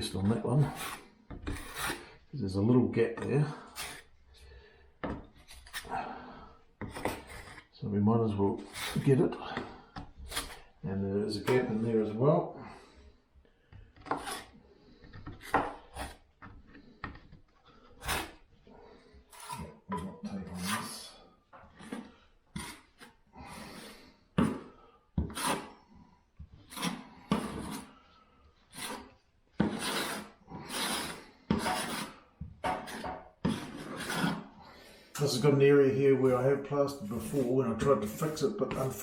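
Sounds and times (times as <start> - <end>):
plastering knife scraping wall: 0.0 - 4.1, 5.0 - 7.7, 8.3 - 10.8, 13.8 - 35.6.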